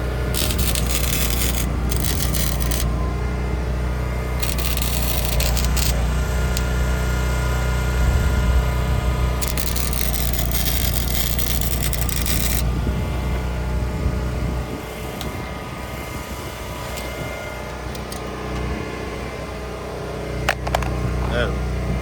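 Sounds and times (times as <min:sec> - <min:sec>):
welding arc crackling: 0:00.0 - 0:03.0, 0:03.7 - 0:07.0, 0:08.6 - 0:12.8.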